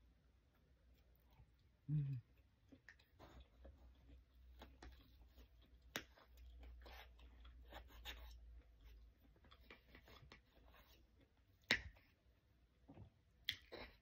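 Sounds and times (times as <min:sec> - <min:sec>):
person chewing: 0:00.5 - 0:11.3.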